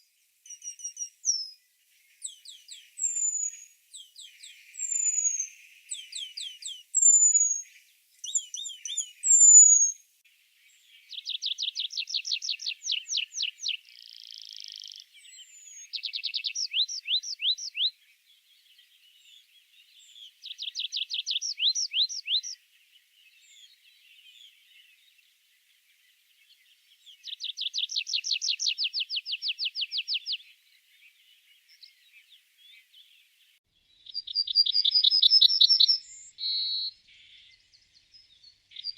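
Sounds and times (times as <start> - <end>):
songbirds whistling: 0.0 - 10.0, 10.7 - 18.0, 19.1 - 22.6, 26.4 - 30.5, 33.9 - 38.9
birds trilling songs: 0.0 - 38.9.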